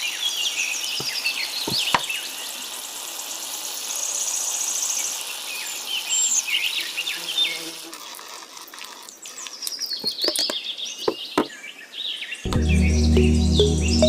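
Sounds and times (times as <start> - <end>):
small birds chirping: 0.0 - 14.0
insect trill: 1.5 - 7.2.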